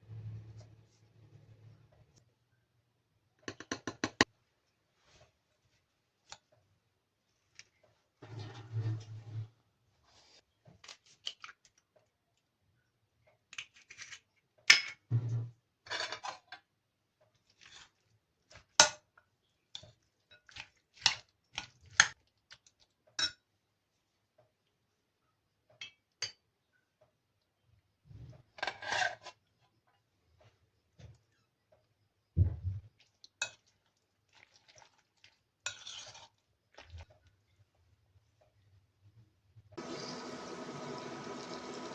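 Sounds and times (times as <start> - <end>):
dish scraping: 8.2 - 9.5.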